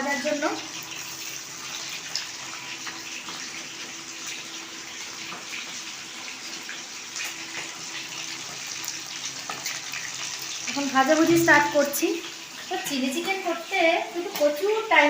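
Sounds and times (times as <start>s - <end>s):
food deep-frying in hot oil: 0.0s - 15.0s.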